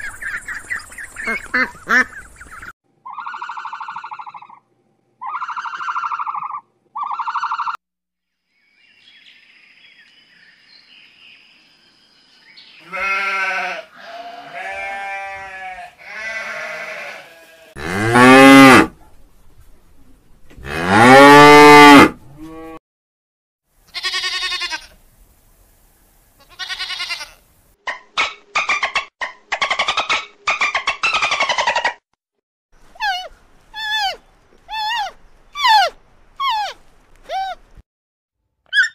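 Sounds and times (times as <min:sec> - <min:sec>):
sheep bleating: 0:12.8 - 0:18.3, 0:23.9 - 0:25.0, 0:26.4 - 0:27.4
cow mooing: 0:12.8 - 0:18.9, 0:20.6 - 0:22.8
short pitched calls: 0:32.8 - 0:37.7.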